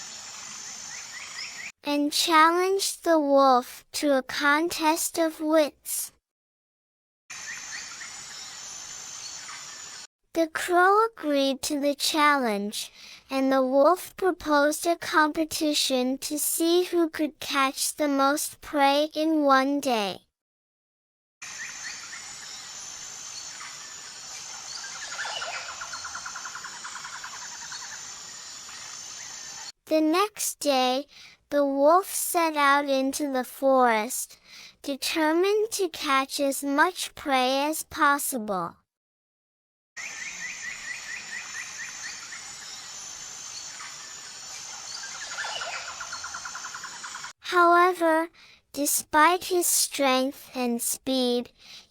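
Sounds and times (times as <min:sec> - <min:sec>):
birds calling: 0:00.0 - 0:01.7, 0:21.4 - 0:29.7, 0:40.0 - 0:47.3
steady hiss: 0:00.0 - 0:01.7, 0:07.4 - 0:10.1, 0:21.5 - 0:25.2, 0:26.3 - 0:29.7, 0:40.2 - 0:45.3.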